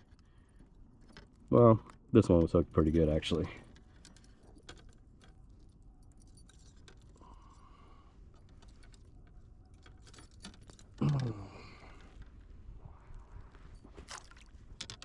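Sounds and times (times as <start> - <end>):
light jangling: 0.0 - 12.4
short vocal sound: 11.0 - 11.8.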